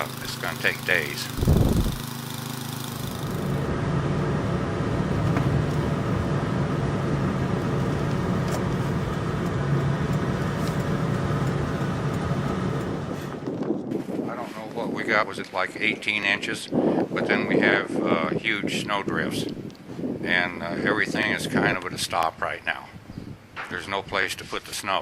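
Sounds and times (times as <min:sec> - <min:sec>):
engine humming with rushing noise: 0:00.0 - 0:13.9.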